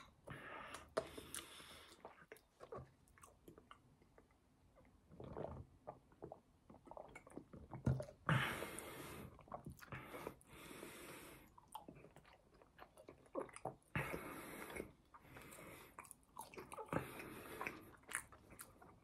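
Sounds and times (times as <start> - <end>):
person chewing fries: 0.8 - 4.4, 11.5 - 14.0, 14.7 - 19.0.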